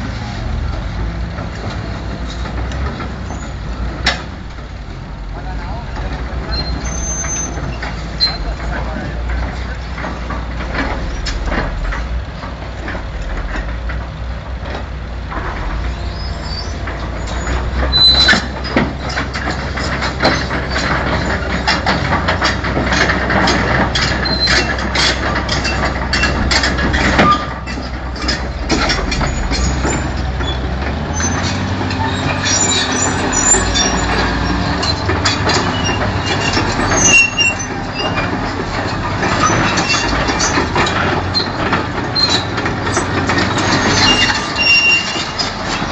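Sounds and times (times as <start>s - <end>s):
diesel engine running: 0.0s - 45.9s
steel tracks clanking: 0.0s - 45.9s
short metal squeals: 3.2s - 3.6s, 6.4s - 8.9s, 15.7s - 22.6s, 23.5s - 45.9s.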